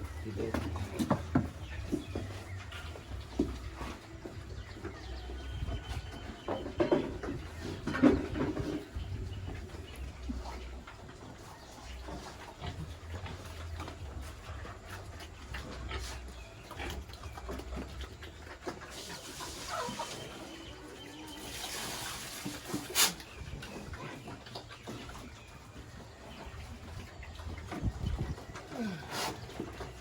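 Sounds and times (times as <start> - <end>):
knocks and rustles: 0.1 - 4.0
pigs calling: 7.4 - 30.0.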